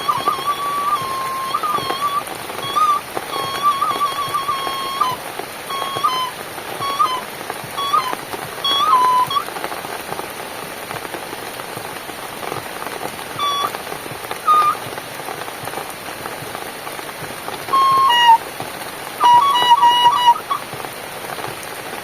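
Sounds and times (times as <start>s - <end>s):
flute-like melody: 0.0s - 9.7s, 13.3s - 14.9s, 17.6s - 18.5s, 19.1s - 20.8s
steady rainfall: 0.0s - 22.0s.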